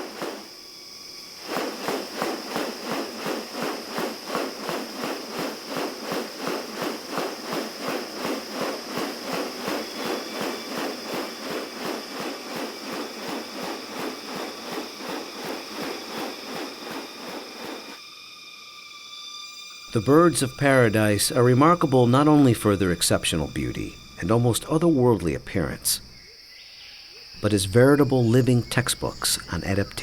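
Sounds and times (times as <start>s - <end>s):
regular pulsing sound: 0.0s - 18.1s
high insect buzz: 0.0s - 30.0s.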